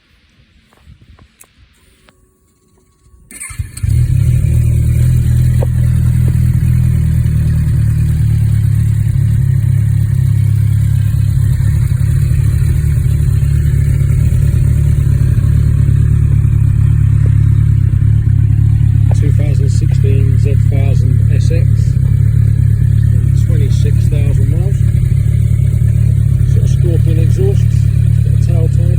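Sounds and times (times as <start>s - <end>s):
motorcycle engine starting and idling: 2.8s - 28.9s.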